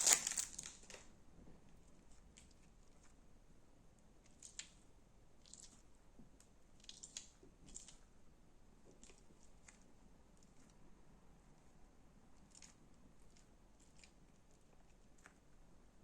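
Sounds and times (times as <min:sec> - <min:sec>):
slime squishy crackles: 0:00.0 - 0:00.9.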